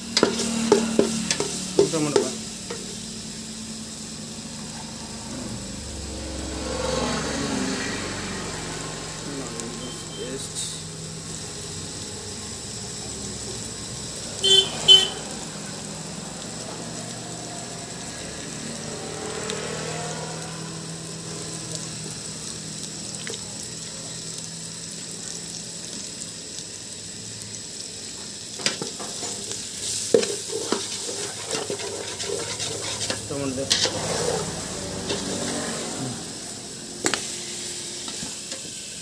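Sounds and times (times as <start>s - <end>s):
spoon scraping a pan: 0.0s - 3.0s, 28.6s - 38.7s
food sizzling in a pan: 0.0s - 39.0s
loud horn honks: 5.2s - 10.6s, 14.3s - 15.6s.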